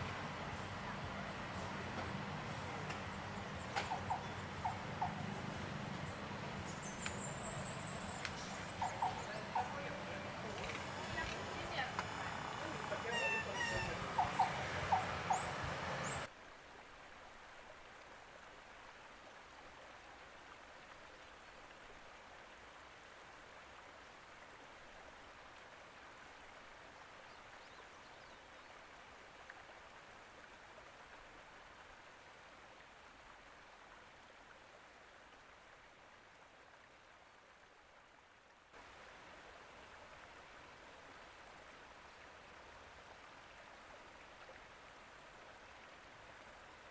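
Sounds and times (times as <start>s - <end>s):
stream water hiss: 0.0s - 46.9s
loud voices: 7.5s - 16.2s.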